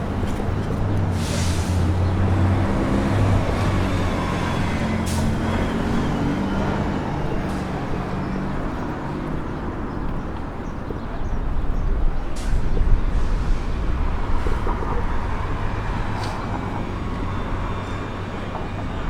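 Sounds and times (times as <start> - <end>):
city street traffic: 0.0 - 19.0
large vehicle engine humming: 0.0 - 19.0.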